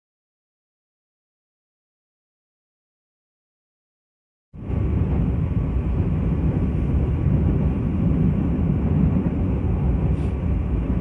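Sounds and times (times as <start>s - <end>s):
train rumbling inside coach: 4.6s - 11.0s.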